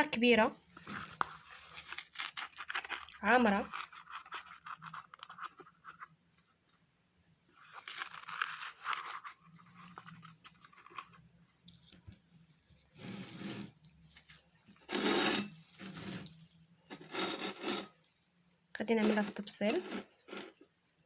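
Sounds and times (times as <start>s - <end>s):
spoon scooping powder: 0.7s - 6.1s, 12.8s - 18.0s, 18.9s - 20.7s.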